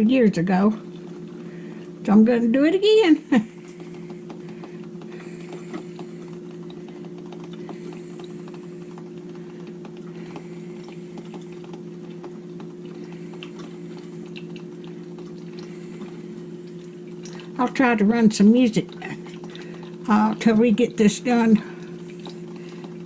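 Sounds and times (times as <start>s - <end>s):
coffee maker humming: 0.0s - 23.0s
small ticks and pops: 3.7s - 16.2s.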